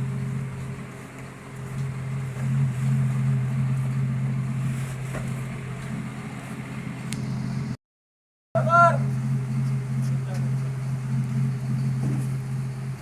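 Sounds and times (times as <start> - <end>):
drilling rig engine droning: 0.0 - 7.8, 8.6 - 13.0.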